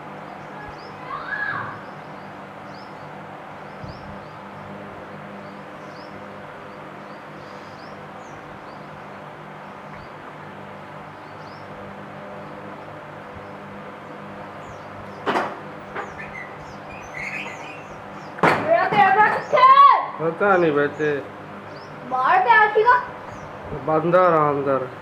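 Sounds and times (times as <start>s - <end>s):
small birds chirping: 0.0s - 25.0s
steady low hum: 0.0s - 25.0s
bird swooping call: 16.1s - 18.0s.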